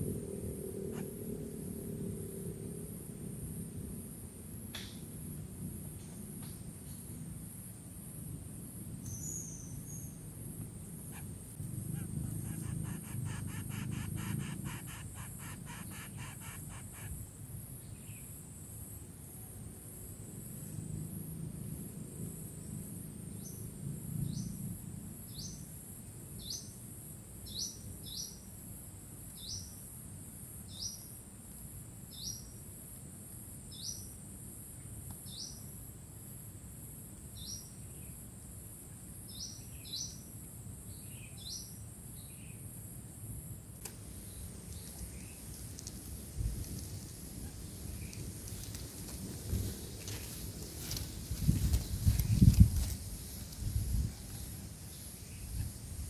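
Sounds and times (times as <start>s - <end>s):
high insect drone: 5.3s - 26.1s, 27.0s - 56.0s
bird chirping: 11.1s - 17.2s.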